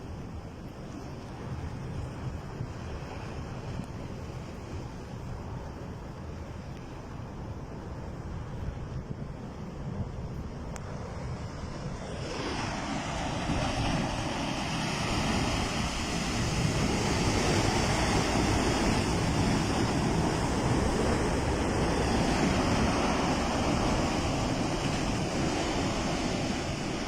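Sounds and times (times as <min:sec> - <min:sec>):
rushing floodwater roar: 0:09.2 - 0:27.0.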